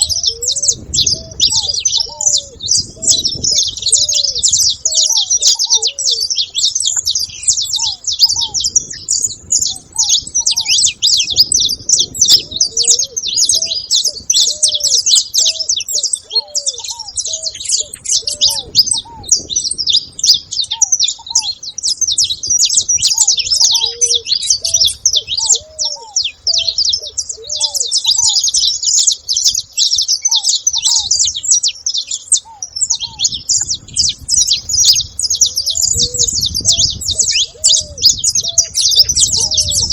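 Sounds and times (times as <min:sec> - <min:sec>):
finches chirping: 0:00.0 - 0:39.9
lower bird call notes: 0:00.0 - 0:39.9.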